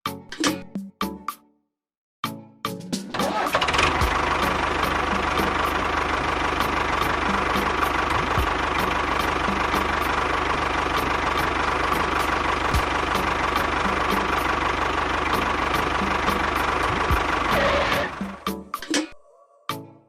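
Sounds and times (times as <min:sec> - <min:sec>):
small engine idling: 0:03.2 - 0:18.5.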